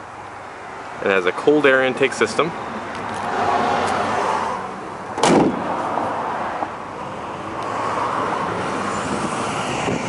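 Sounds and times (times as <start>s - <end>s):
vehicle noise: 0.0s - 10.0s
loud slam: 5.2s - 5.7s.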